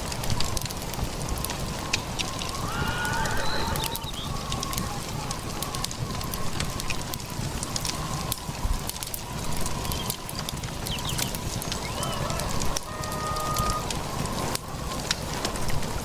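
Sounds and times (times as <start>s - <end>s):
rumbling noise with crackling clicks: 0.0s - 16.0s
wavering animal call: 2.7s - 5.1s, 11.9s - 13.9s.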